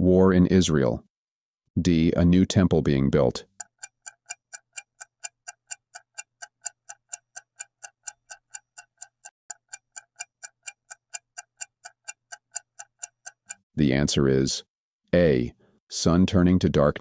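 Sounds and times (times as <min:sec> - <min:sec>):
clock ticking: 0:03.1 - 0:13.6.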